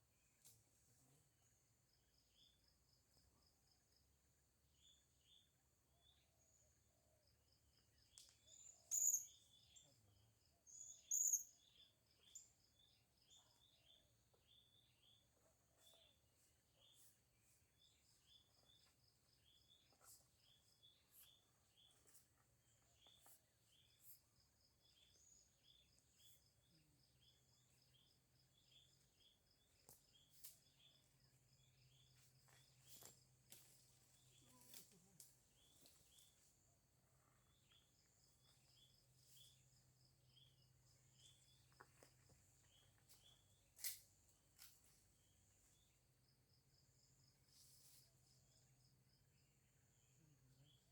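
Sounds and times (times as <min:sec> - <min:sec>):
small bird chirping: 0:04.7 - 0:46.1
insect trill: 0:08.5 - 0:09.8.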